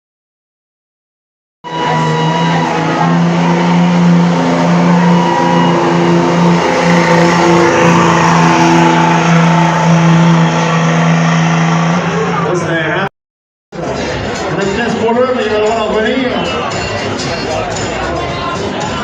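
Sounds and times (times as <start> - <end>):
truck engine droning at high revs: 1.6 - 13.1.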